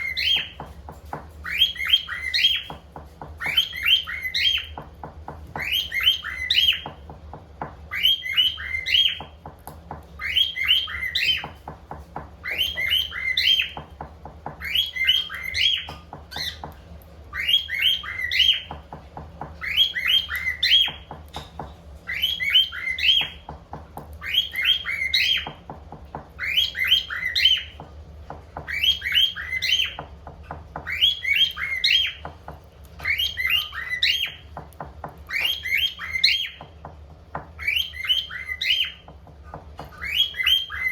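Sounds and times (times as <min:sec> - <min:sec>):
cockatiel chirping whistles: 0:00.0 - 0:00.6, 0:01.4 - 0:02.8, 0:03.4 - 0:04.8, 0:05.5 - 0:06.9, 0:07.9 - 0:09.4, 0:10.2 - 0:11.6, 0:12.4 - 0:13.8, 0:14.6 - 0:16.7, 0:17.3 - 0:18.8, 0:19.6 - 0:21.4, 0:22.1 - 0:23.4, 0:24.2 - 0:25.6, 0:26.4 - 0:27.8, 0:28.7 - 0:30.0, 0:30.8 - 0:32.2, 0:33.0 - 0:34.4, 0:35.2 - 0:36.6, 0:37.6 - 0:39.1, 0:39.9 - 0:40.9.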